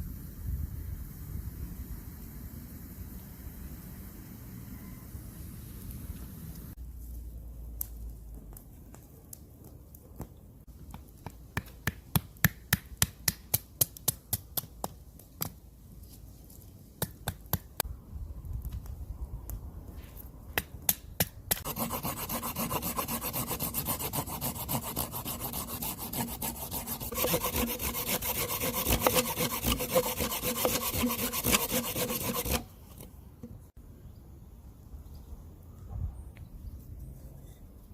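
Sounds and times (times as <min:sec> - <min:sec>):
knife strokes cutting wood: 0:21.5 - 0:33.1
tool scraping wood: 0:21.6 - 0:33.1.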